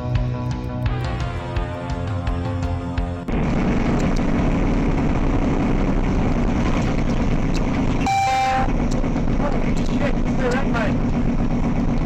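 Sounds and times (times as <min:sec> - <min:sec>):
background music: 0:00.0 - 0:07.0
vehicle noise on board: 0:03.3 - 0:12.0.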